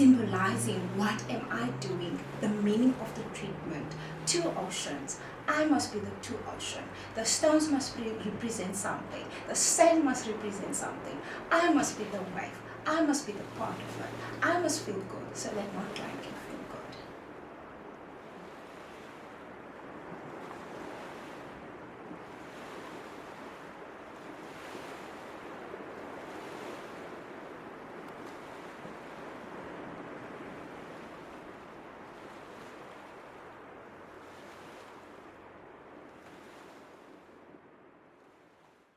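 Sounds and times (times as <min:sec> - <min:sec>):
ocean surf washing on shore: 0:00.0 - 0:38.8.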